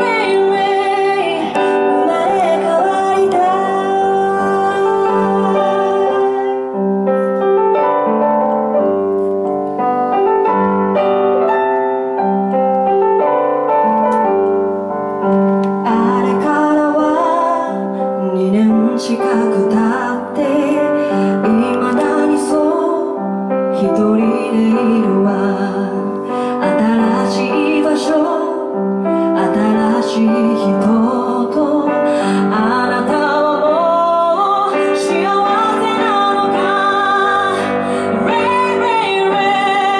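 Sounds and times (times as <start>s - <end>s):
woman singing: 0.0s - 7.2s, 15.8s - 39.9s
piano playing slowly: 0.0s - 39.9s.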